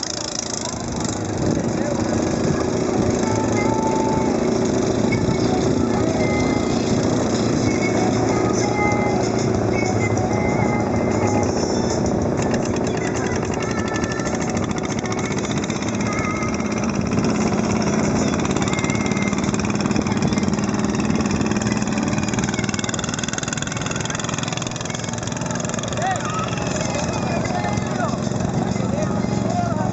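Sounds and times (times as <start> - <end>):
boat engine running: 0.0 - 29.9.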